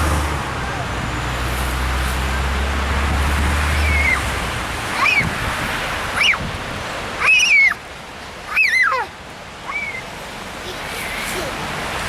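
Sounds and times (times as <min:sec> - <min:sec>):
low engine hum: 0:00.0 - 0:12.0
wind on microphone: 0:02.2 - 0:07.0.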